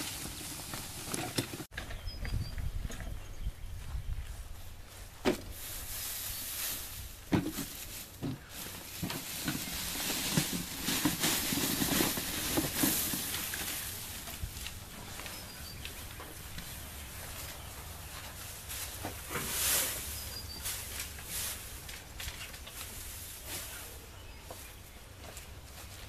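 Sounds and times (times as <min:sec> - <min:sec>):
dry wheat stalks rustling: 0:00.0 - 0:01.7, 0:03.7 - 0:26.0
faint bird chirp: 0:01.8 - 0:04.4, 0:15.0 - 0:18.2, 0:19.9 - 0:20.9.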